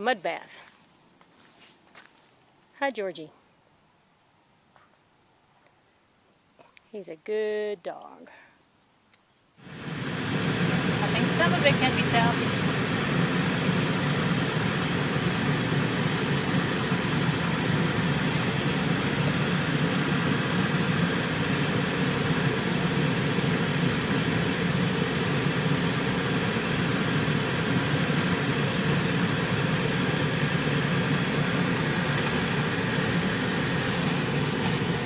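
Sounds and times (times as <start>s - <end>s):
vehicle engine and road noise: 9.6s - 35.0s.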